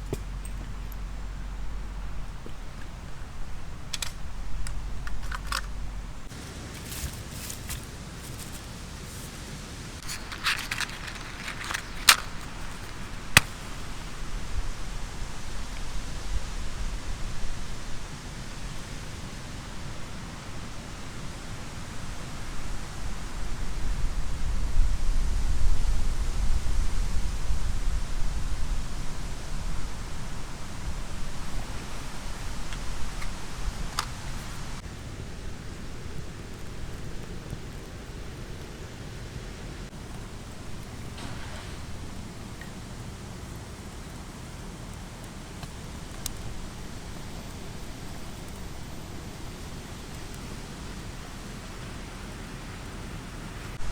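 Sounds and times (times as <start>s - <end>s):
wind buffeting microphone: 0.0s - 53.9s
wind gusting through trees: 0.0s - 53.9s
sharp clicks: 3.9s - 5.9s, 10.0s - 14.0s.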